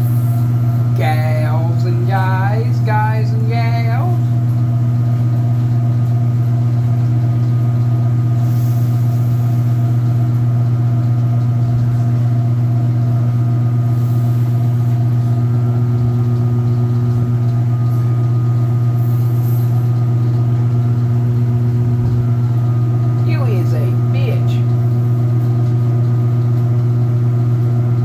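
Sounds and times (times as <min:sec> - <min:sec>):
washing machine motor humming: 0:00.0 - 0:28.0.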